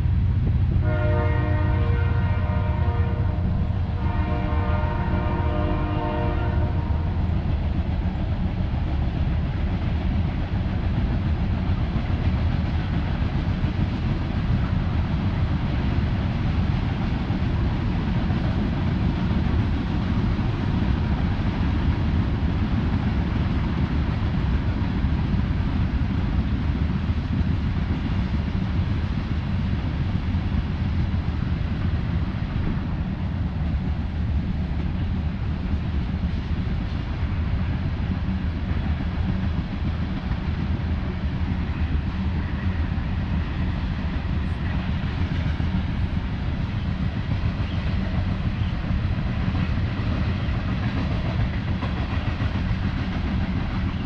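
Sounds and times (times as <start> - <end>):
train rumbling past: 0.0 - 54.0
train horn blasts: 0.8 - 7.2.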